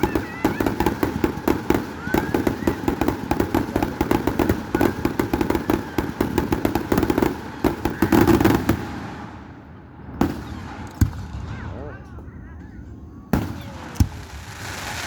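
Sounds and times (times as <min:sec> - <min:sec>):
fireworks crackling pops: 0:13.4 - 0:15.0.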